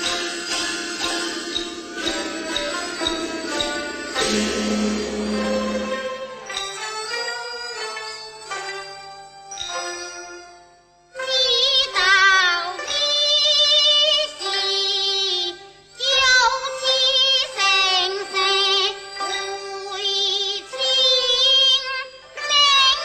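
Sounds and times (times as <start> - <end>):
sustained instrumental accompaniment: 0.0 - 11.1.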